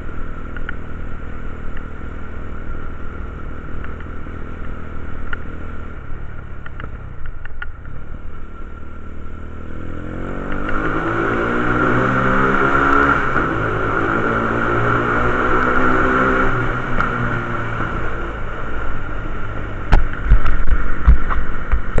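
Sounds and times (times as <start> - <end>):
quad bike engine revving: 9.7 - 18.2.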